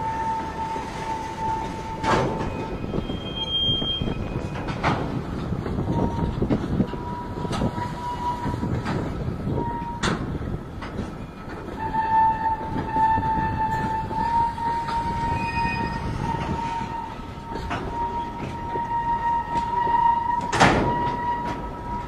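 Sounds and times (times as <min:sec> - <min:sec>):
high wheel squeal: 0:00.0 - 0:04.8, 0:11.2 - 0:22.0
train wheels rumbling and clicking: 0:00.0 - 0:22.0.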